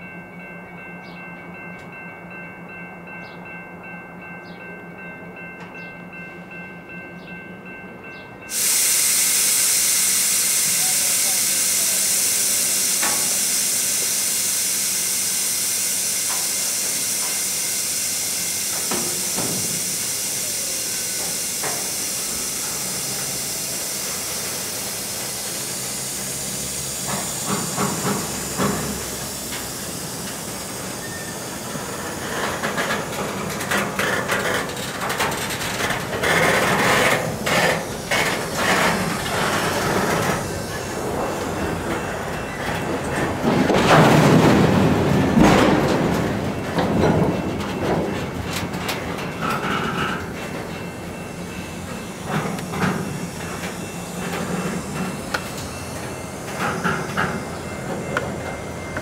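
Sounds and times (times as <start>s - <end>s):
train brake air hiss: 8.5s - 34.5s, 36.4s - 43.1s, 50.8s - 59.0s
wheels and couplers clanking: 18.7s - 59.0s.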